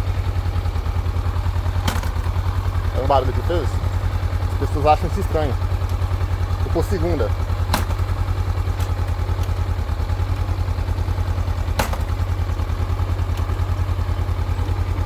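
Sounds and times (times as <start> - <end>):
motorcycle engine idling: 0.0 - 15.0
gear engaging clunk: 1.8 - 2.3, 7.6 - 9.6, 11.7 - 12.2.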